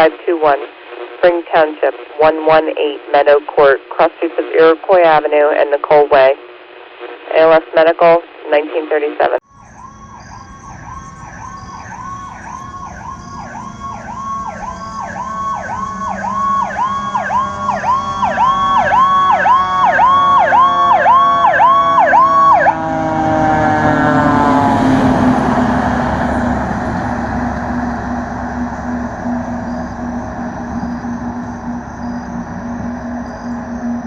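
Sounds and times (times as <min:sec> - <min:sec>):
fire truck siren yelping: 0:09.4 - 0:34.0
siren tone winding down: 0:09.4 - 0:34.0
rush of passing truck: 0:23.0 - 0:33.7.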